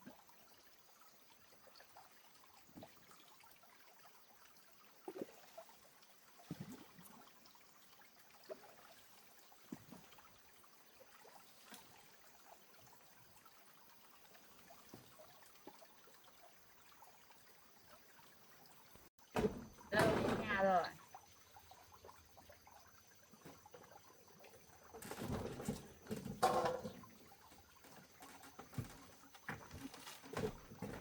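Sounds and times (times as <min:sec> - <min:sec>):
faint trickling water: 0:00.0 - 0:31.0
soft knocks and splashes: 0:02.6 - 0:03.4, 0:05.0 - 0:07.4, 0:08.0 - 0:12.5, 0:14.2 - 0:16.2, 0:19.1 - 0:31.0.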